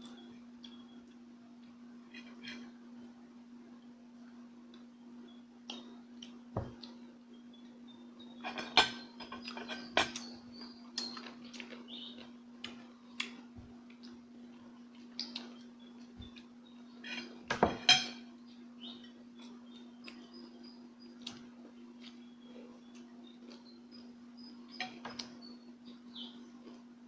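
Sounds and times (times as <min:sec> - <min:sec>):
low electrical hum: 0:00.0 - 0:27.0
cutlery clinking on plates: 0:08.4 - 0:10.2, 0:17.1 - 0:18.3.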